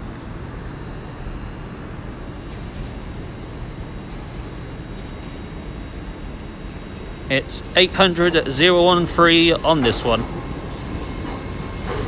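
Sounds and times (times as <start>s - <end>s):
train rumbling slowly: 0.0s - 12.0s.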